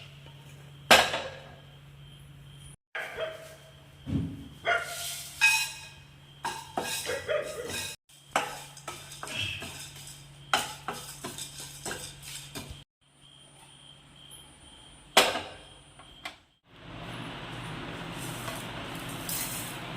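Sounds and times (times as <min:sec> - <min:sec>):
utensils and dishes clattering: 0:05.0 - 0:12.8.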